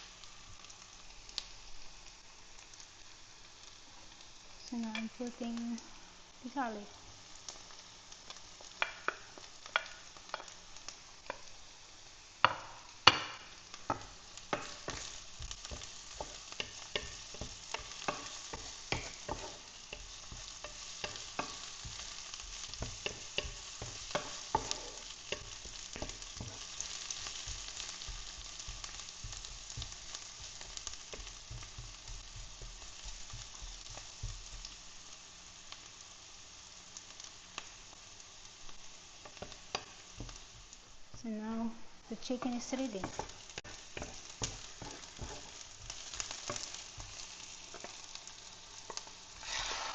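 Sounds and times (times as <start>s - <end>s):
onion and garlic sizzling in oil: 0.0s - 49.9s
utensil stirring against pan: 12.4s - 35.3s, 38.6s - 40.9s, 42.2s - 49.9s.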